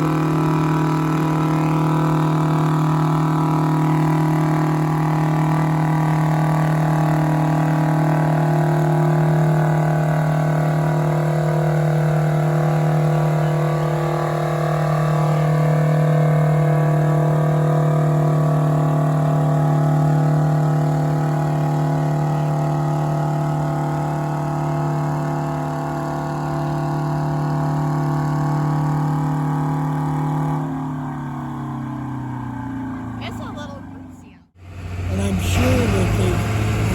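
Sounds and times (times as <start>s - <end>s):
engine running steadily: 0.0s - 36.9s.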